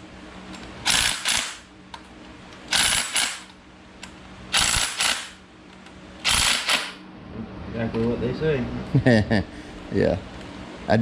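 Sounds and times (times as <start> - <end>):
ratchet wrench clicking: 0.9 - 1.6, 2.7 - 3.5, 4.5 - 5.4, 6.2 - 7.0.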